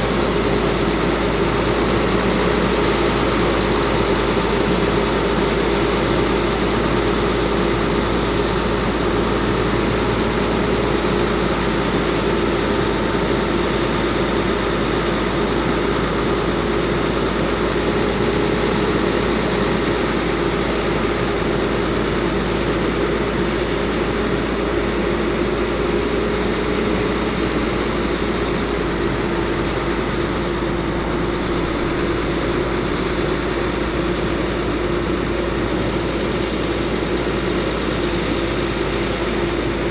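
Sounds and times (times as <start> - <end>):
diesel truck engine running: 0.0 - 39.9
steady hum: 25.4 - 34.8.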